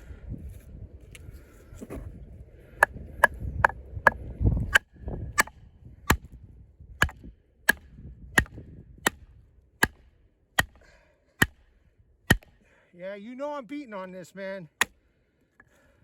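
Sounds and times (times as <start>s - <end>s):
knife chopping into wood: 4.7s - 5.5s, 7.0s - 9.2s, 9.8s - 10.8s, 11.4s - 11.6s, 12.3s - 12.6s.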